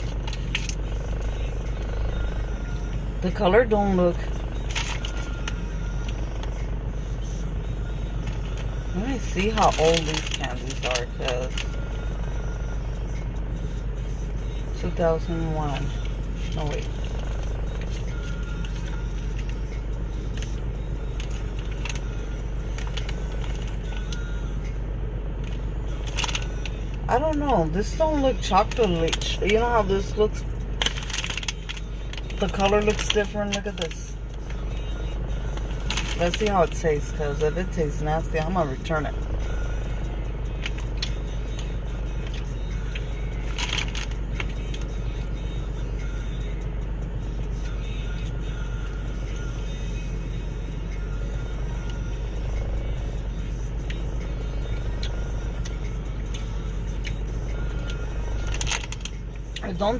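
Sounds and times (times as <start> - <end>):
car engine idling: 0.0 - 59.9
vehicle humming from inside: 0.0 - 59.9
handling clicks and rustles: 35.3 - 39.3, 40.5 - 44.9.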